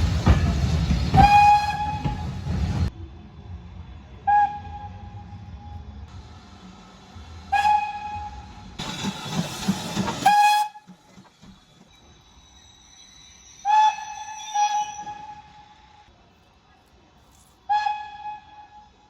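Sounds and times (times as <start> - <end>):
steam locomotive whistle blasts: 1.2 - 2.4, 7.5 - 8.6, 10.2 - 11.0, 13.5 - 15.8.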